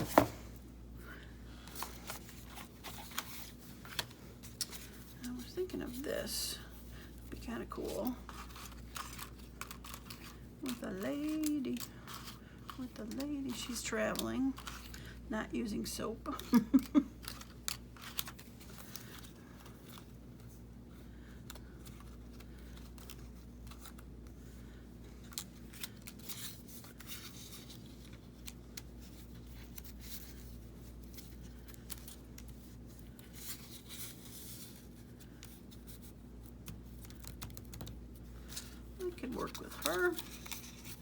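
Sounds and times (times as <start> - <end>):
paper rustling and clicks: 31.2 - 38.8.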